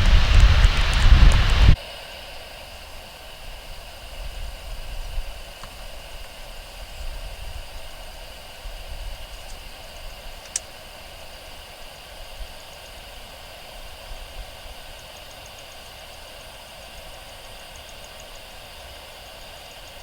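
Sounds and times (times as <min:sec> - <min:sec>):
jet engines humming: 0:00.0 - 0:20.0
faint rapid high ticking: 0:03.9 - 0:20.0.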